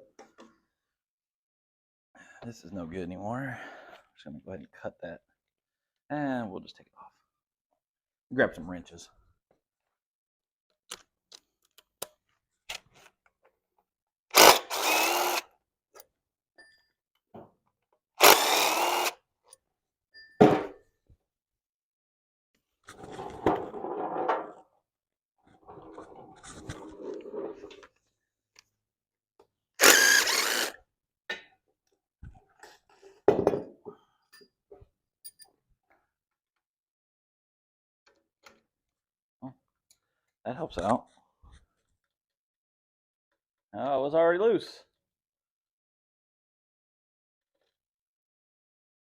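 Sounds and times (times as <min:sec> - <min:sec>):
cordless power tool running: 0:14.4 - 0:15.4, 0:18.2 - 0:19.2, 0:29.8 - 0:30.8.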